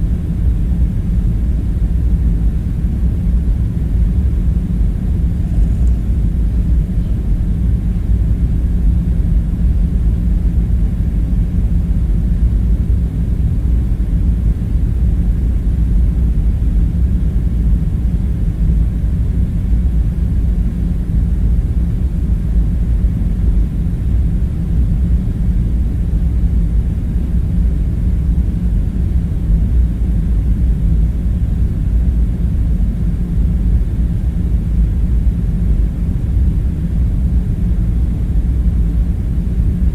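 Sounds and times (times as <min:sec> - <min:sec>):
low rumbling drone: 0:00.0 - 0:39.9.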